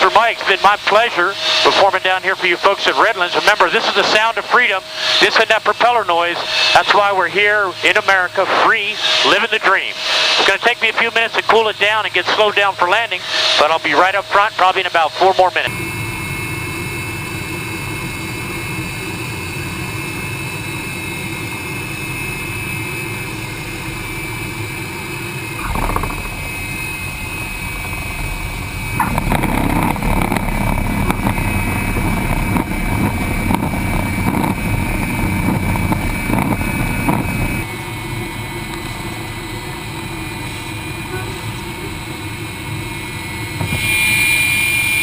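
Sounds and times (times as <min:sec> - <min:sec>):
jet engine and airflow noise: 0:00.0 - 0:45.0
engine crackling: 0:25.5 - 0:37.7.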